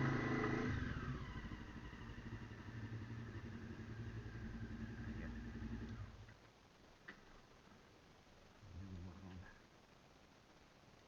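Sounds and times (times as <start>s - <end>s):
motorcycle engine idling: 0.0s - 5.9s.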